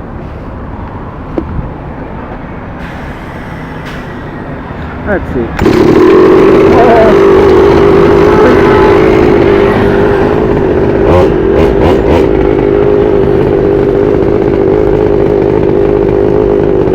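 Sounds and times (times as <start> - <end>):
two-stroke engine running: 5.1 - 16.9.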